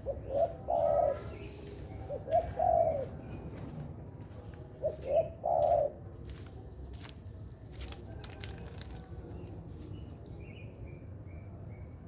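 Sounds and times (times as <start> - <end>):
dove cooing: 0.0 - 3.4, 4.7 - 6.1.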